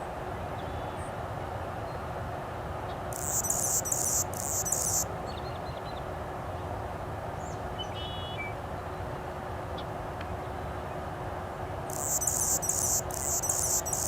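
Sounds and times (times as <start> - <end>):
songbird twittering and chirping: 3.1 - 6.0, 11.9 - 14.0.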